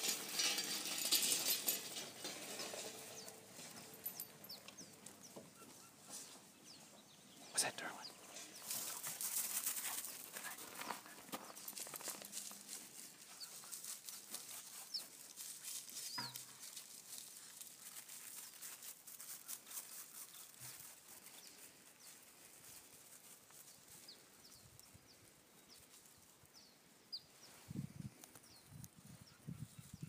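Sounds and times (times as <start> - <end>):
small birds chirping: 3.0 - 9.2, 13.0 - 17.1, 18.2 - 30.0
footsteps on gravel: 8.4 - 23.5.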